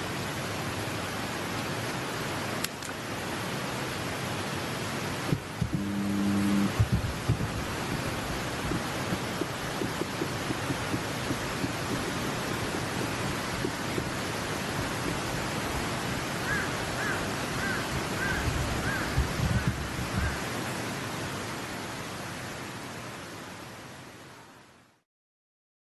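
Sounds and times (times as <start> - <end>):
mountain stream rushing: 0.0 - 24.9
wind rumble on microphone: 5.2 - 16.0, 18.0 - 20.4.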